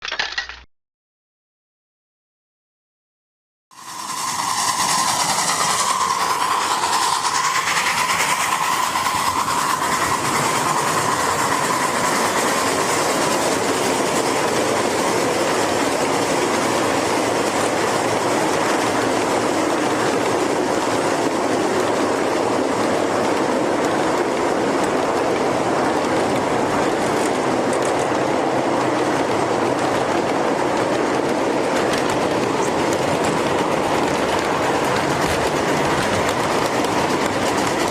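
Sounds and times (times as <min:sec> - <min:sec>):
engine and drivetrain noise: 0:03.8 - 0:37.9.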